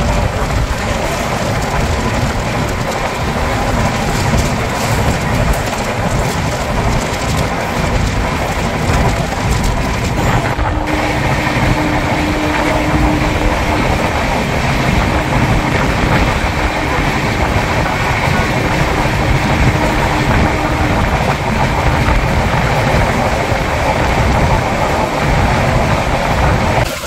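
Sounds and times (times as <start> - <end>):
train rushing on rails: 0.0 - 27.0
steady tone: 10.2 - 24.6.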